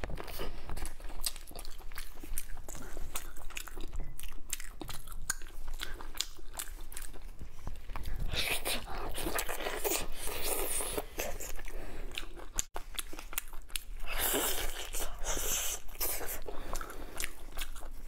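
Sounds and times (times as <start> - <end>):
biting and chewing meat on bone: 0.0 - 18.0.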